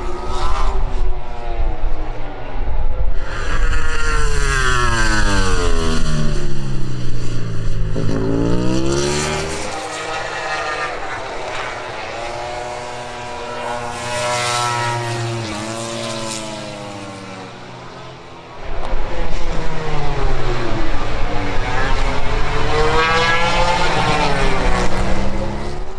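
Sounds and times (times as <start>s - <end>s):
race motorcycles revving and passing: 0.0s - 25.9s.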